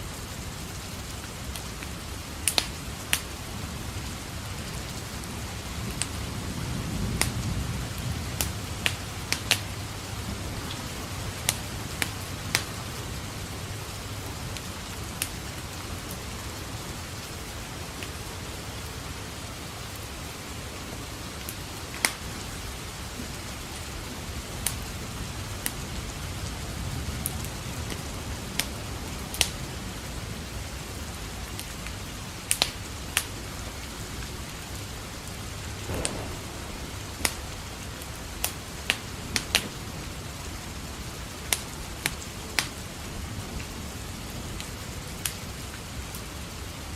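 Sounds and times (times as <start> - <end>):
steady rain: 0.0 - 46.9
wood fire crackling: 0.1 - 18.9, 20.0 - 29.6, 31.5 - 46.9
distant thunder rumble: 3.5 - 14.0, 35.7 - 41.1.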